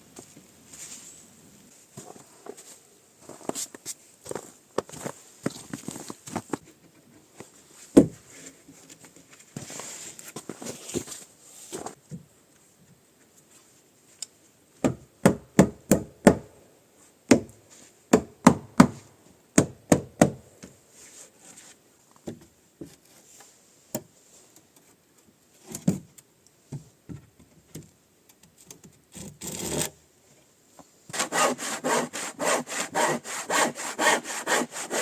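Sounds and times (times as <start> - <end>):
hand tool striking wood: 18.1 - 20.7.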